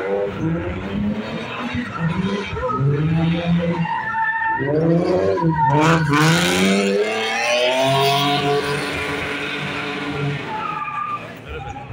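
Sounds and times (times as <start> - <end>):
tyres skidding screech: 0.0 - 11.9
car engine revving hard: 4.6 - 10.5.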